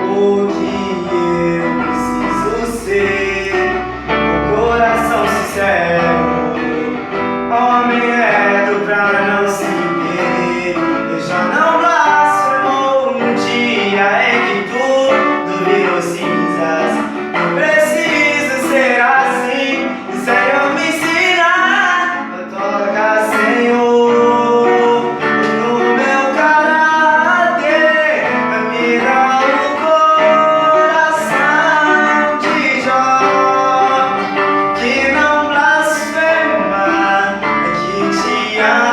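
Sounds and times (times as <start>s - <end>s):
guitar accompaniment: 0.0s - 38.9s
person singing: 0.0s - 38.9s.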